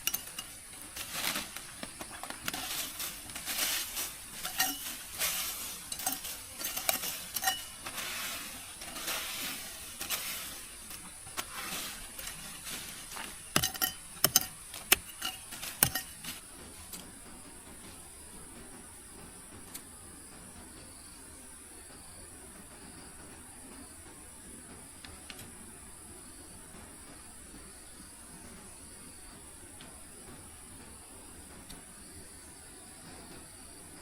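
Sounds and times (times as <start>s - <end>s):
cookware and utensils clinking: 0.0s - 1.4s, 2.4s - 16.4s.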